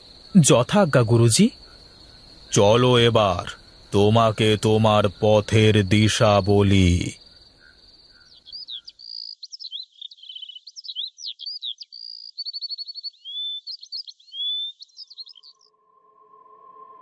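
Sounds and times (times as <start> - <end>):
birdsong chirps and trills: 7.1 - 15.9.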